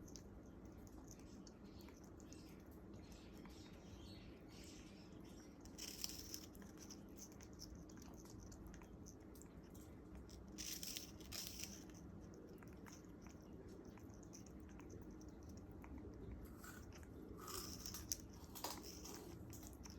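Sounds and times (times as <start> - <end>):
parrot crunching sugarcane: 5.5 - 19.9.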